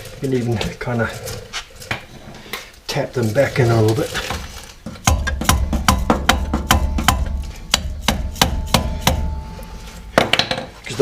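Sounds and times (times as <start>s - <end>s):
sharp metallic taps: 4.9s - 9.5s.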